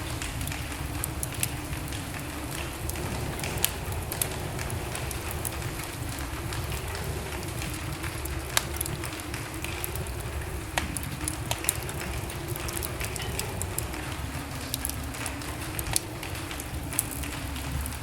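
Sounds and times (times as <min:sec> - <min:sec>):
fire crackles and pops: 0:00.0 - 0:18.0
low rush of flames: 0:00.0 - 0:18.0.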